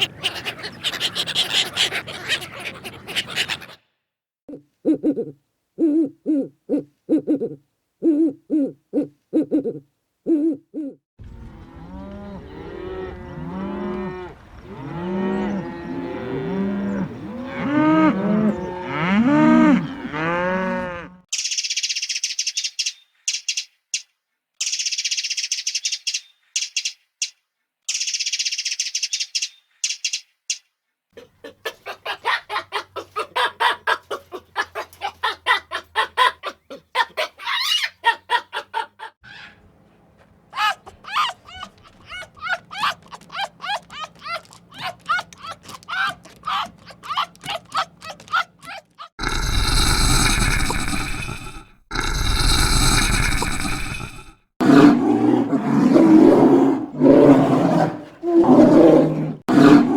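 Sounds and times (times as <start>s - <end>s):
low animal hoots: 4.5s - 11.0s, 40.6s - 59.9s
cattle mooing: 11.5s - 21.2s
high-pitched chirping: 21.3s - 30.6s
rapid clucking: 31.4s - 39.1s, 40.6s - 49.1s.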